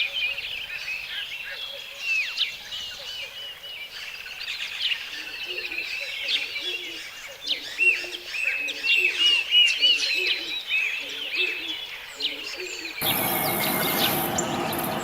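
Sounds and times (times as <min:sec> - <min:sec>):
birds chirping and calling: 0:00.0 - 0:15.0
low short bird note: 0:13.0 - 0:15.0.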